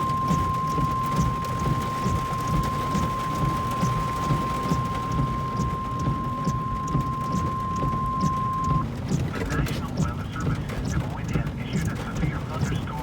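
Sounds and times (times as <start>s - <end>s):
high electronic beep tone: 0.0s - 8.8s
hail and rain drumming on car: 0.0s - 13.0s.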